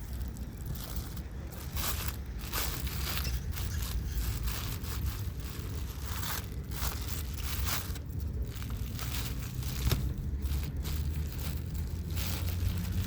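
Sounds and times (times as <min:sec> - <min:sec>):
packaging crinkling and tearing: 0:00.0 - 0:13.0.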